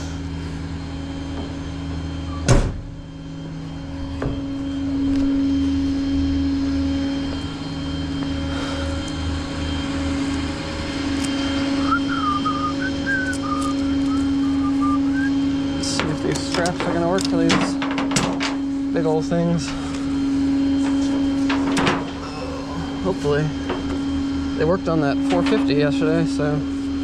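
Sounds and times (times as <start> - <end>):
faint high squeaks: 22.2 - 22.9.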